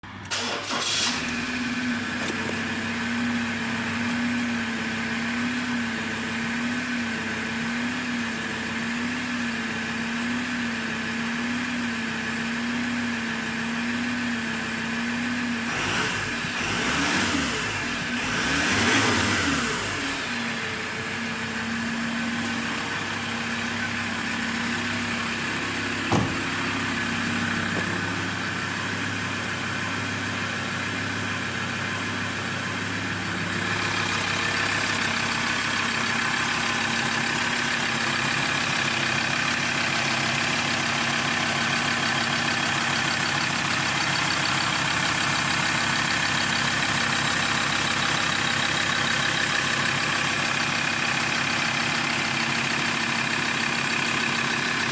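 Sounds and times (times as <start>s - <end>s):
pickup engine idling: 17.6s - 54.9s.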